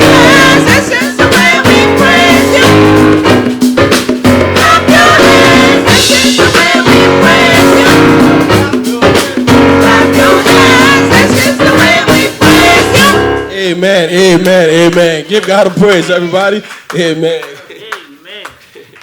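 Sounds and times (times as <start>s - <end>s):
people singing: 0.0s - 3.4s, 4.5s - 15.2s
worship band playing: 0.0s - 18.7s.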